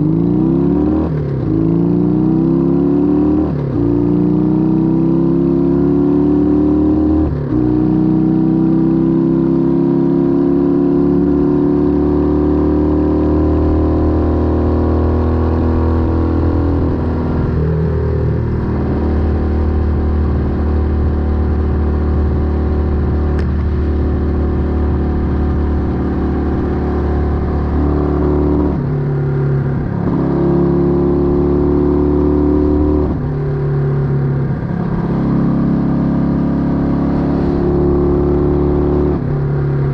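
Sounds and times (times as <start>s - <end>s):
motorcycle exhaust: 13.0s - 39.9s.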